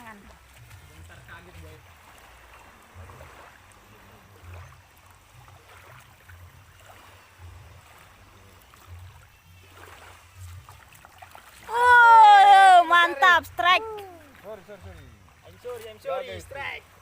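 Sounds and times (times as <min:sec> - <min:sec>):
water washing on shoreline: 0:00.0 - 0:17.0.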